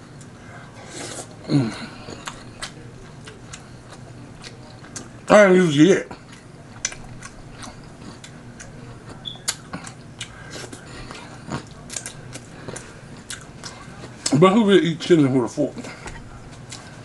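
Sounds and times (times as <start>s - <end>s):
wet chewing mouth sounds: 1.0s - 5.2s, 6.1s - 14.4s.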